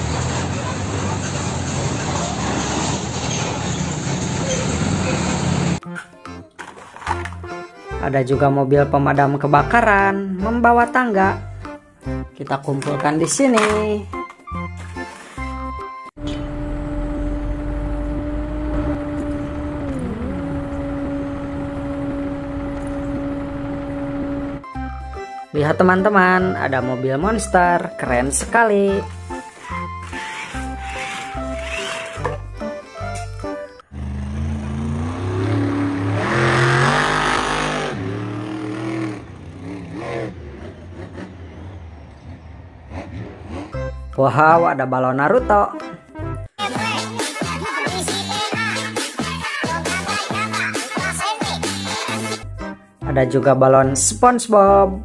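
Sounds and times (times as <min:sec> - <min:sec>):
motor hum: 0:16.2 - 0:24.6
car engine revving: 0:16.2 - 0:24.7, 0:33.8 - 0:44.2.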